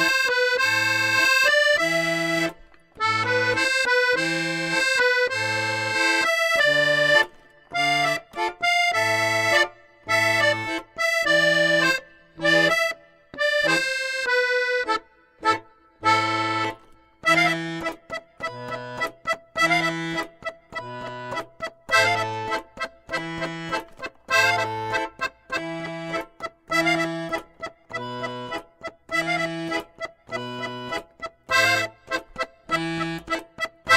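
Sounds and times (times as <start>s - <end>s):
accordion music: 0.0s - 33.9s.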